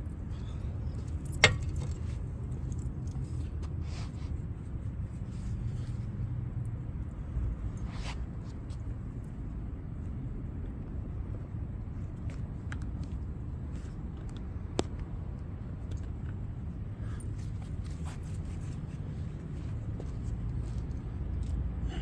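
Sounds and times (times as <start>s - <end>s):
metallic tool clink: 0.4s - 3.4s.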